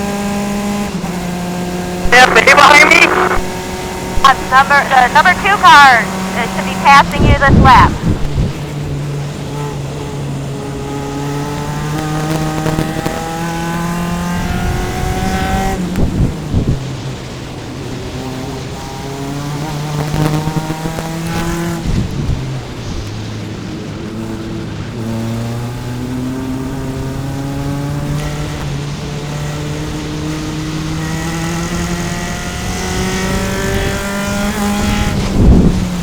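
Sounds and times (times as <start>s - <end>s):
race car engine accelerating: 8.0s - 36.0s.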